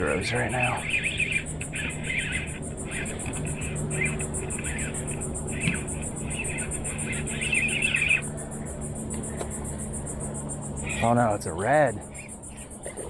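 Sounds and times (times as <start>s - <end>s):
insects chirring: 0.0s - 13.0s
patchy chirping: 0.0s - 13.0s
steady low hum: 0.0s - 13.0s.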